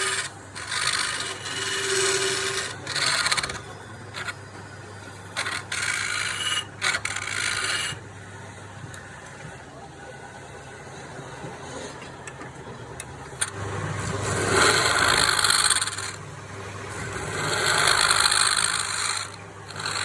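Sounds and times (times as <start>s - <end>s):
power tool motor humming: 0.0s - 4.4s, 5.3s - 8.0s, 13.4s - 16.2s, 16.9s - 20.0s
tool grinding against wood: 0.0s - 4.4s, 5.3s - 8.0s, 13.4s - 16.2s, 16.9s - 20.0s.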